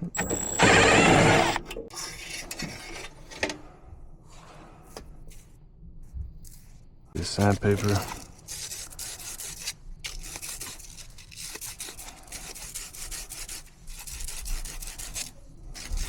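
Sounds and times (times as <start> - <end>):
sandpaper rubbing on metal rod: 7.2 - 16.0.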